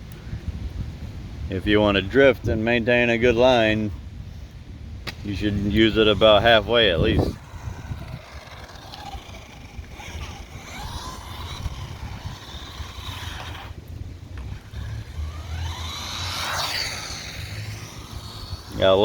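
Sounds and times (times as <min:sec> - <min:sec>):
electric motor whining: 0:05.3 - 0:19.0.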